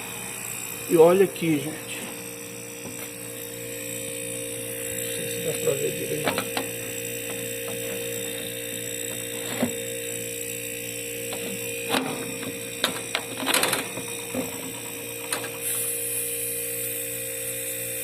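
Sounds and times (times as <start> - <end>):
refrigerator compressor humming: 0.0 - 18.0
handling clicks and knocks: 6.2 - 6.7, 11.3 - 15.5.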